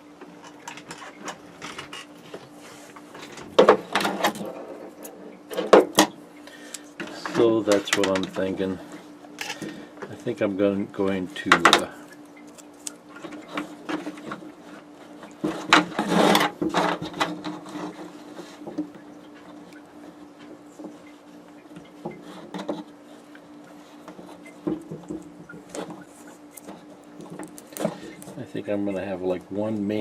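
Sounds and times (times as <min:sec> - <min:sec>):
steady low hum: 0:00.0 - 0:30.0
clicks and knocks handling parts: 0:06.7 - 0:08.5, 0:24.0 - 0:28.4.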